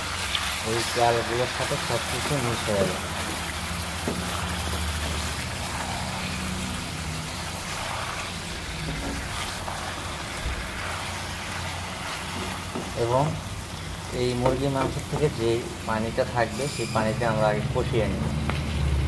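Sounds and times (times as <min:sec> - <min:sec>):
chicken and onions sizzling in oil: 0:00.0 - 0:19.0.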